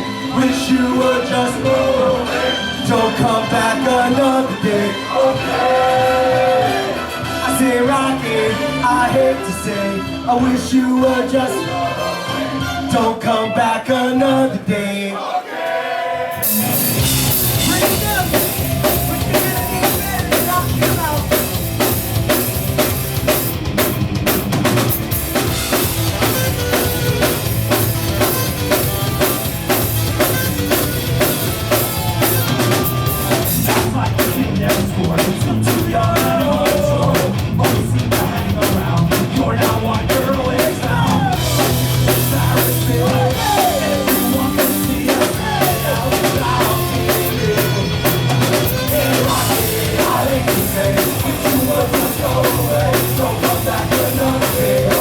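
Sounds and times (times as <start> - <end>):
rock band playing: 0.0 - 13.7, 16.3 - 55.0
drum kit: 16.3 - 55.0.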